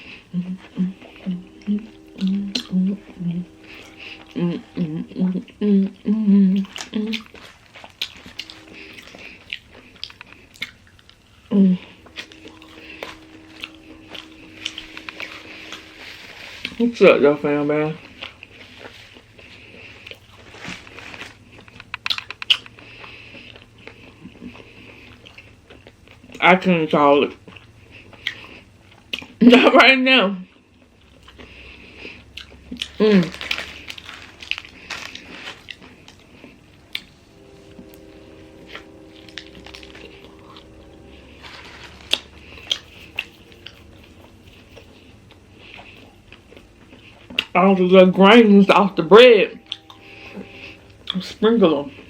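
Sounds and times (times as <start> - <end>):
faint steady hum: 0.0 - 52.0
person biting and chewing: 1.9 - 16.9, 18.0 - 26.4, 27.4 - 29.4, 30.6 - 37.2, 42.1 - 47.6
sharp crunchy clicks: 21.6 - 22.8.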